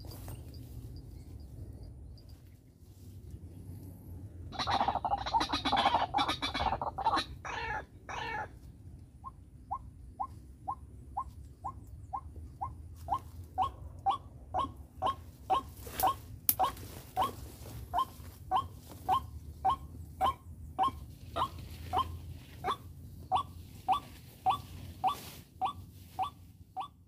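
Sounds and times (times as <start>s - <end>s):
waterhen calling: 4.5s - 8.5s.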